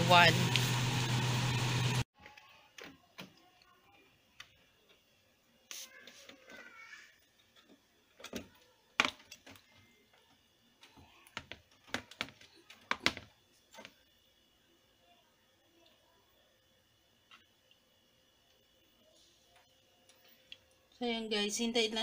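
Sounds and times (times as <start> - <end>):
plastic parts clicking and knocking: 7.5 - 9.8, 10.8 - 14.0.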